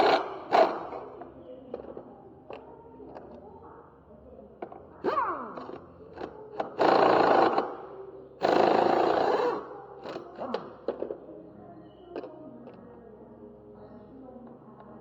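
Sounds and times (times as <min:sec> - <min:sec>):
power tool bursts: 0:00.0 - 0:01.0, 0:06.6 - 0:07.8, 0:08.4 - 0:10.6.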